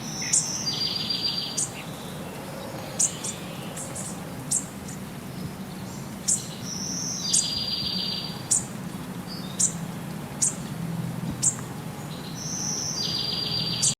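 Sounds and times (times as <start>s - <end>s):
birds chirping: 0.0s - 13.9s.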